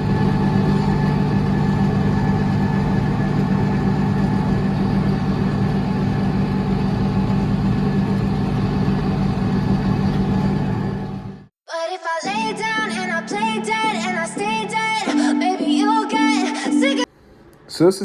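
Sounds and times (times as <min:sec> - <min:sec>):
tractor engine humming: 0:00.0 - 0:11.5.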